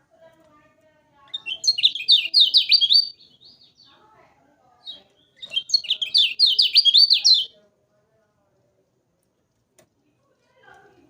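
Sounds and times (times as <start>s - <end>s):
bird singing high chirps: 1.2s - 4.0s, 4.8s - 7.5s.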